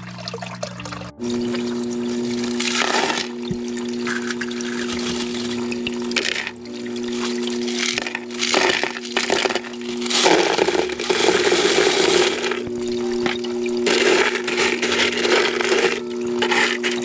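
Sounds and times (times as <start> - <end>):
water pouring and splashing: 0.0 - 17.0
steady low hum: 0.9 - 17.0.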